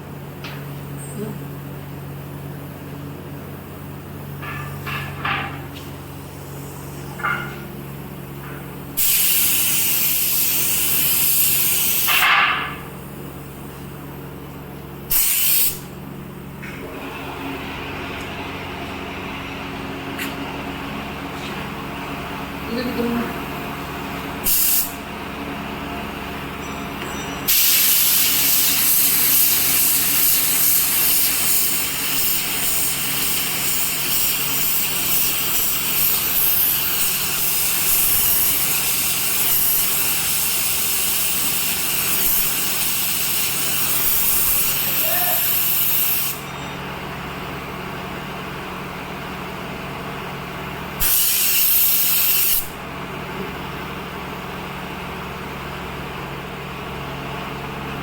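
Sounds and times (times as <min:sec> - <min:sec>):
compressed air hissing: 0:06.1 - 0:07.2, 0:08.9 - 0:13.8, 0:15.1 - 0:15.9, 0:24.4 - 0:25.0, 0:27.4 - 0:46.6, 0:51.0 - 0:52.8.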